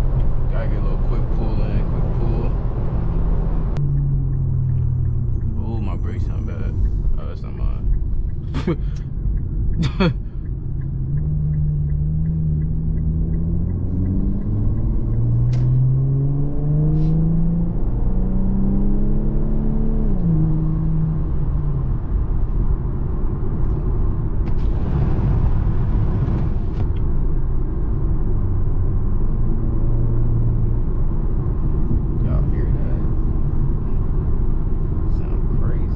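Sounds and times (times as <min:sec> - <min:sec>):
car engine accelerating through gears: 0:10.5 - 0:35.9.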